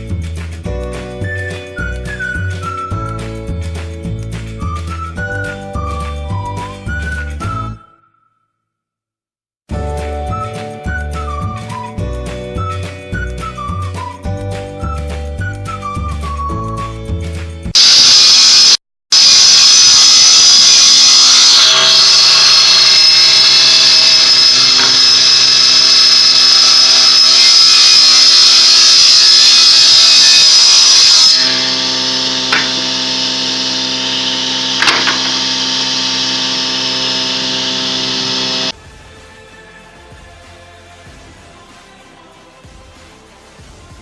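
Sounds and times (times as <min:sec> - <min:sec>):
power tool high-pitched whine: 0:17.8 - 0:38.8.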